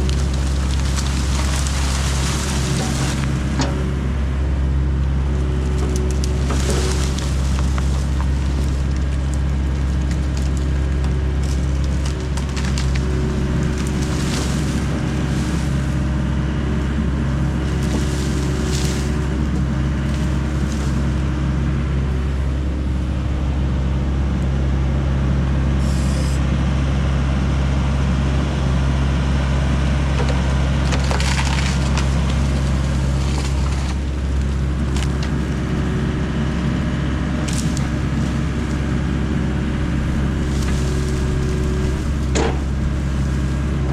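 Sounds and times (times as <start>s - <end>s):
wood cracking and splintering: 0.0s - 4.0s, 5.4s - 21.4s, 29.9s - 43.9s
excavator diesel engine running: 0.0s - 43.9s.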